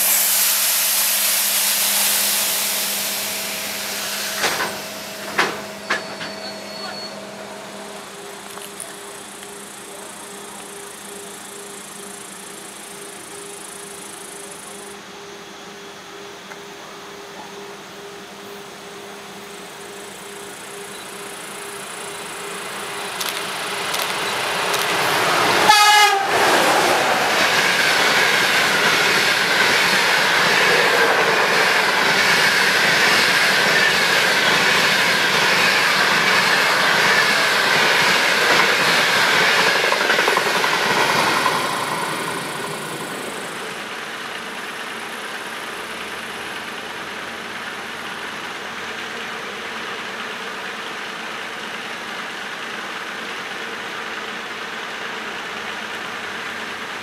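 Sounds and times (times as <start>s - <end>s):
train wheels clattering on rails: 3.1s - 10.8s, 21.6s - 48.9s
train horn blast: 25.5s - 27.2s.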